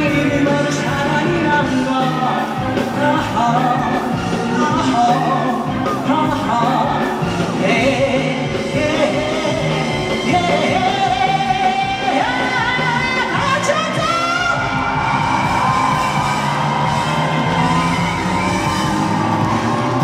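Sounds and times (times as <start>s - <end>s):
male singer holding long notes: 0.0s - 14.6s
live band playing pop song: 0.0s - 20.0s.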